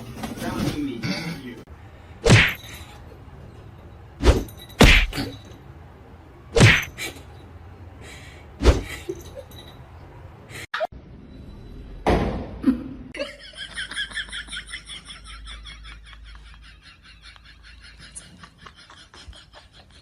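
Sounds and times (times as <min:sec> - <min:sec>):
sharp thumps or knocks: 0:04.2 - 0:05.3.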